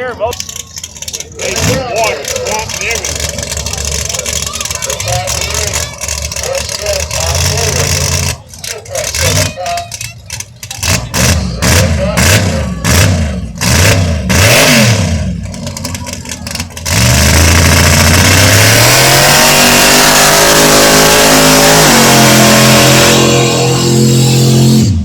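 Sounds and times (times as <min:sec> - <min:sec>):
exhaust cracks: 0:00.0 - 0:25.0
engine revving hard: 0:01.4 - 0:25.0.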